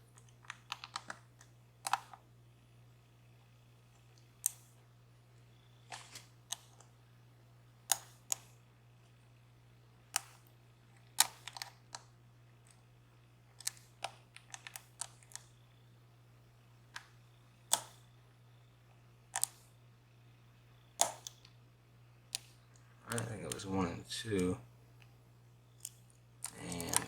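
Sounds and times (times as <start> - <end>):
faint low hum: 0.0 - 27.0
lock pick clicking on pins: 7.9 - 8.6, 17.0 - 18.1, 21.0 - 21.5.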